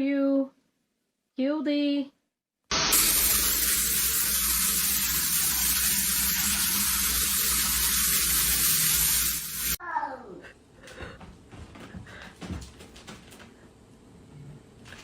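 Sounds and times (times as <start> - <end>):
steady rushing hiss: 2.9 - 9.8.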